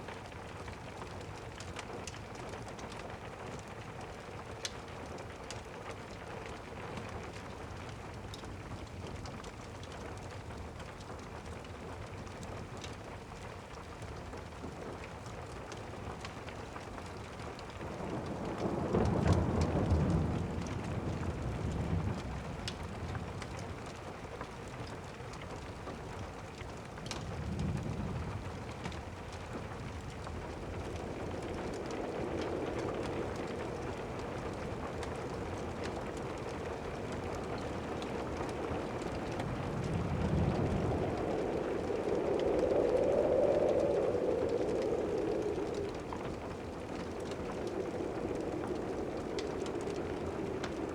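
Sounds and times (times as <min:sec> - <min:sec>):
steady rain: 0:00.0 - 0:50.9
wood fire crackling: 0:00.0 - 0:50.9
thunder rumbling: 0:17.8 - 0:23.4, 0:27.2 - 0:50.9.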